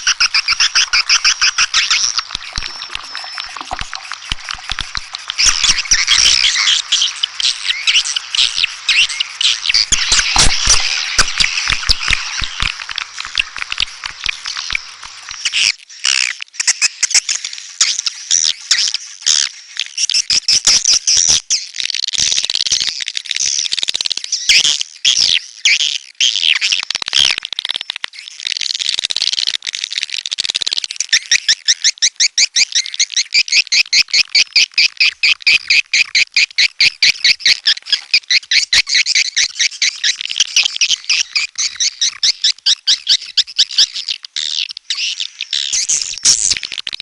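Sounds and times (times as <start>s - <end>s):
sharp clicks: 0.0s - 15.6s
swiftlet chirps and trills: 0.0s - 15.6s.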